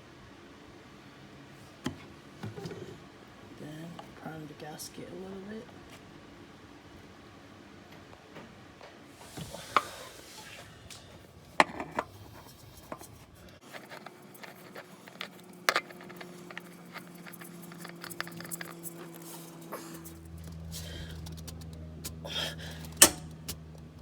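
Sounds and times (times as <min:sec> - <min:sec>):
tools and filter clicking and scraping: 0:11.5 - 0:23.6.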